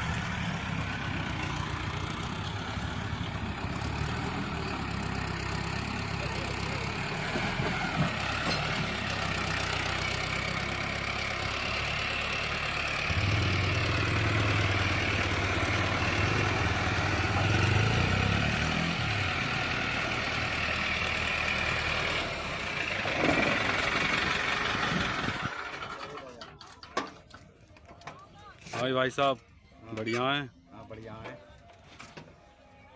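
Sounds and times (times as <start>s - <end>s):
tractor diesel engine running: 0.0s - 26.9s.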